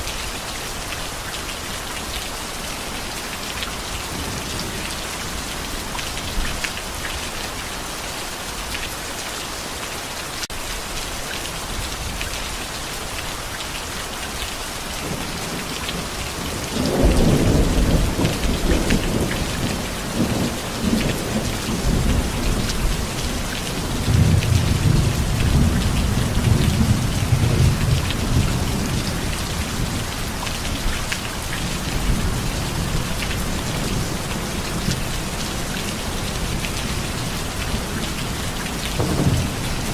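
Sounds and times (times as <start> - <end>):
heavy steady rain: 0.0 - 39.9
thunder rumbling: 16.4 - 30.0, 38.9 - 39.9.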